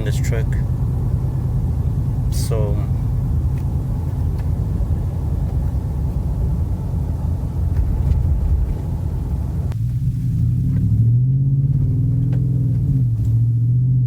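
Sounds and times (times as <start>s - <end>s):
pickup truck exhaust rumbling: 0.0s - 14.0s
road noise: 0.0s - 14.0s.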